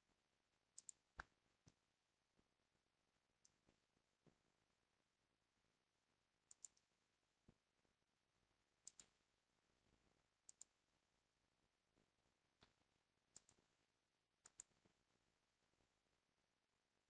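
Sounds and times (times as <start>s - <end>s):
faint sharp clicks: 0.8s - 1.8s, 6.5s - 6.9s, 8.8s - 9.2s, 10.5s - 10.7s, 12.6s - 13.6s, 14.4s - 14.8s.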